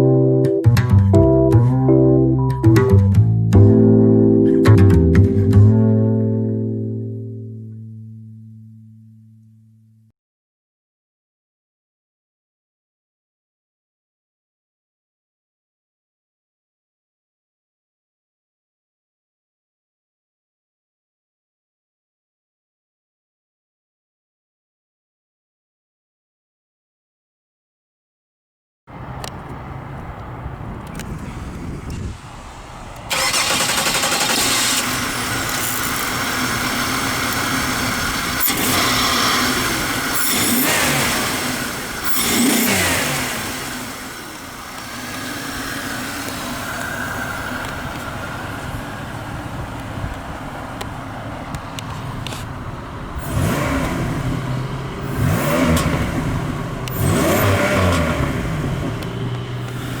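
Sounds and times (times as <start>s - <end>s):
car engine starting and revving: 28.9s - 60.0s.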